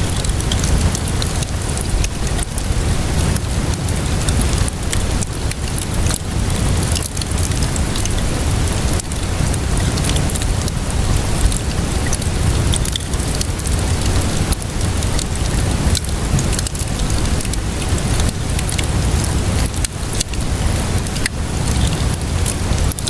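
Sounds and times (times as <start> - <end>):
deep steady rumble: 0.0 - 23.0
steady rainfall: 0.0 - 23.0
wood fire crackling: 0.0 - 23.0.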